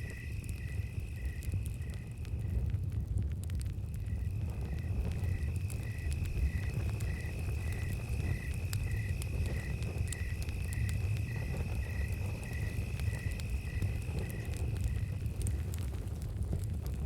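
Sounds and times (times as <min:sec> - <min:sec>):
campfire crackling and popping: 0:00.0 - 0:17.0
fire low rumble: 0:00.0 - 0:17.0
cricket high steady trill: 0:04.0 - 0:15.2.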